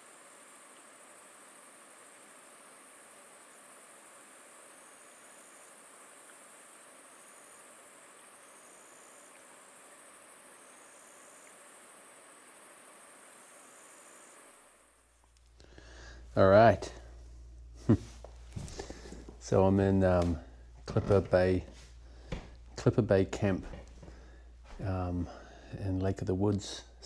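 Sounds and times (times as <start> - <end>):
insect high trill: 0.0 - 15.2
insect lower trill: 0.0 - 15.4.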